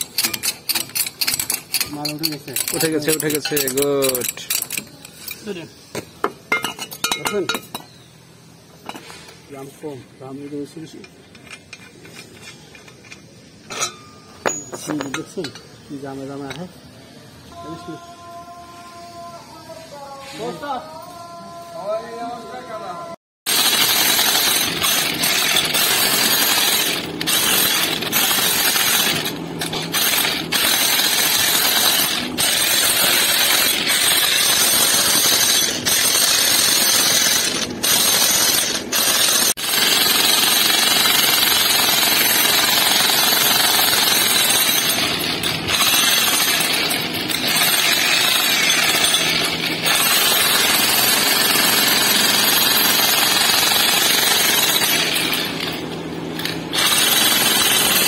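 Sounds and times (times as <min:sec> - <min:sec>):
power tool hammering: 0:23.5 - 0:58.0.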